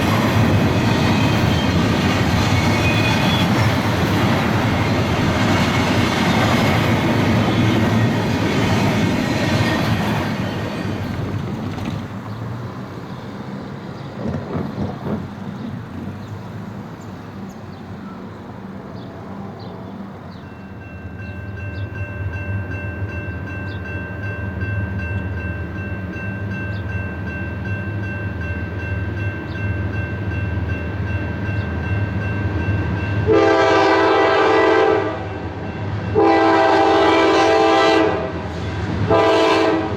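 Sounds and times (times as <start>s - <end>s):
diesel locomotive drone: 0.0s - 39.9s
passing train rumble: 0.0s - 39.9s
crossing bell ringing: 18.0s - 37.8s
locomotive air horn: 33.3s - 39.9s.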